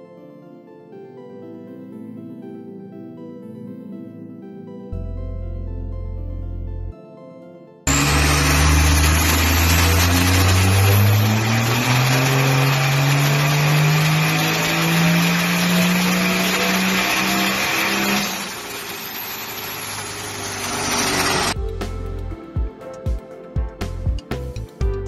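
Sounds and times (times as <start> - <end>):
vehicle engine revving: 7.9 - 21.6.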